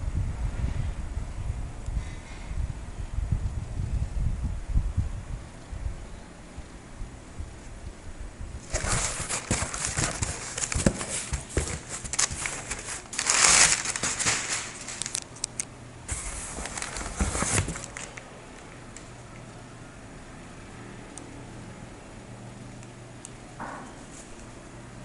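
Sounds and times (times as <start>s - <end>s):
packaging crinkling and rustling: 8.6s - 19.1s.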